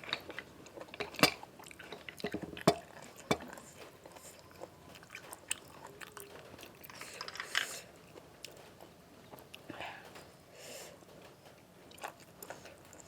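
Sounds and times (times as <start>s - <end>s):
person chewing and crunching food: 0.0s - 10.1s, 11.0s - 13.0s.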